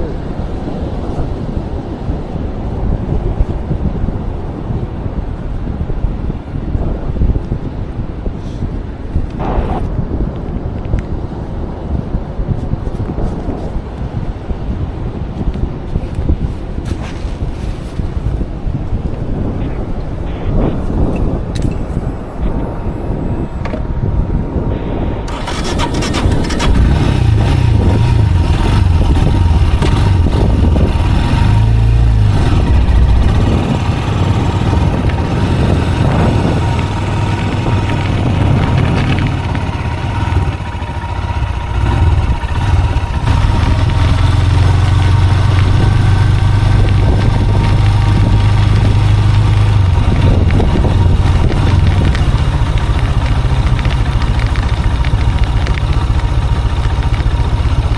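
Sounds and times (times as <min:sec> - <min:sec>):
vehicle engine running: 0:25.3 - 0:57.9.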